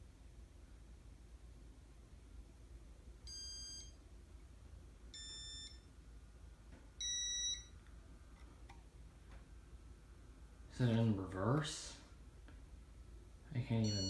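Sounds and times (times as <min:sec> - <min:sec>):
electronic beeps: 0:05.2 - 0:05.8, 0:07.0 - 0:07.7.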